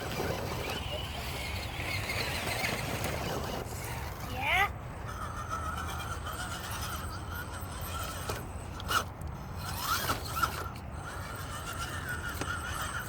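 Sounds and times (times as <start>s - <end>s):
rc car motor and gears whining: 0.0s - 13.0s.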